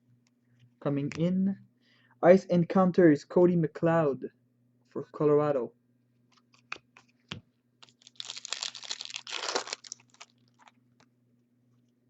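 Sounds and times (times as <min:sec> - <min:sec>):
wrapper tearing and crinkling: 0:07.8 - 0:10.8.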